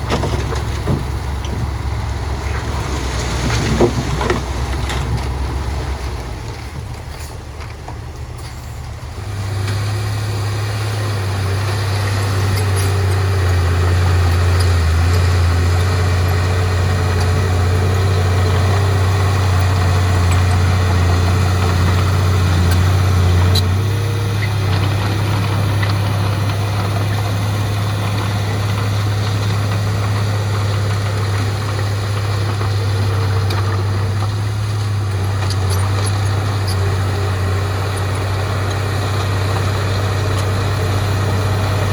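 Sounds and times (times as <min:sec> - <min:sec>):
heavy diesel engine droning: 0:00.0 - 0:41.9.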